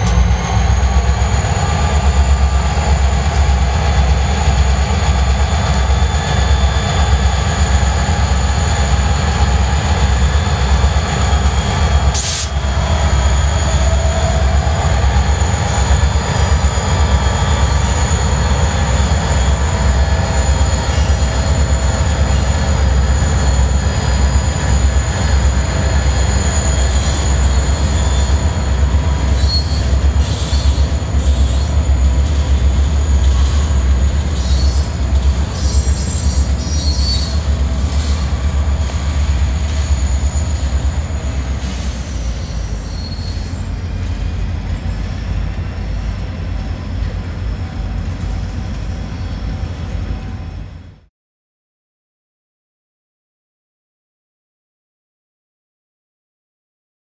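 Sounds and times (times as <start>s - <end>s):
train cars clanking: 0.0s - 50.7s
diesel locomotive engines: 0.0s - 51.1s
train wheel squeal: 0.0s - 51.1s.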